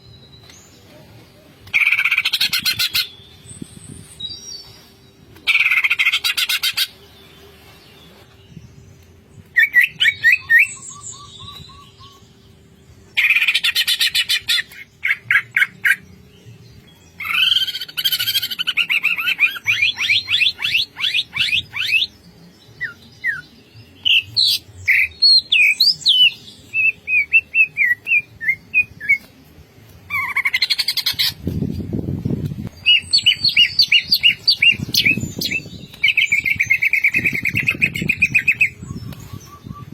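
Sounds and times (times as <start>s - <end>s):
bird trills and chirps: 1.7s - 29.4s, 30.0s - 39.9s.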